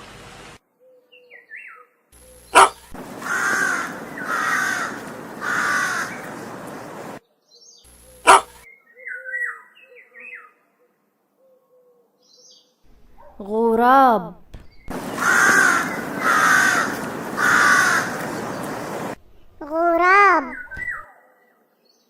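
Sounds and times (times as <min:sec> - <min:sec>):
crow cawing: 0:02.6 - 0:07.1, 0:08.3 - 0:08.5, 0:15.0 - 0:19.2.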